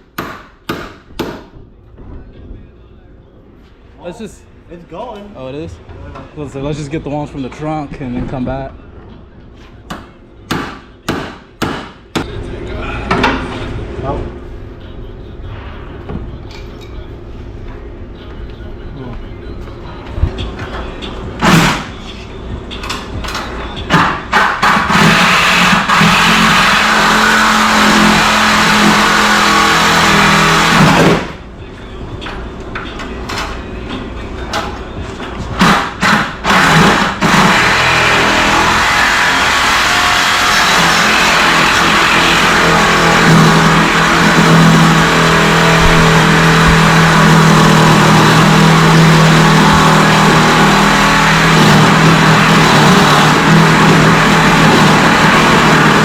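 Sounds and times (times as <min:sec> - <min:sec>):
metal cutting noise: 0:23.8 - 0:31.3, 0:35.6 - 0:56.0
power tool motor whine: 0:36.5 - 0:56.0.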